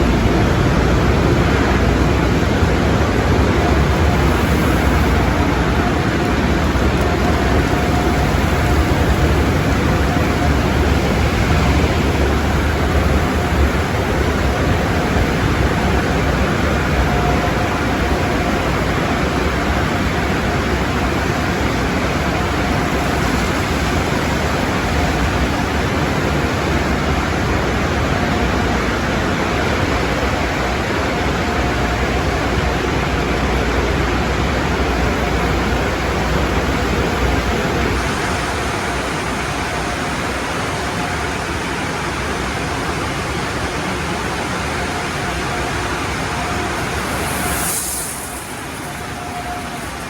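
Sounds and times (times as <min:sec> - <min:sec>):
water spray and machinery rushing: 0:00.0 - 0:50.0.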